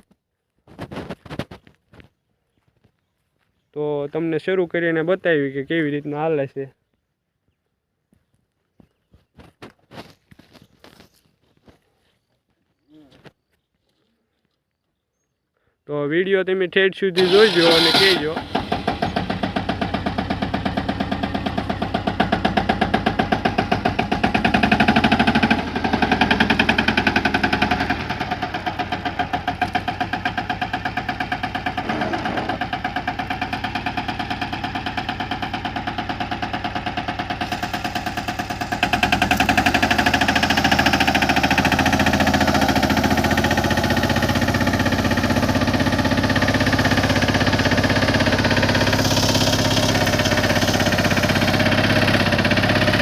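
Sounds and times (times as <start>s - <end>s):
tractor engine running: 17.2s - 53.0s.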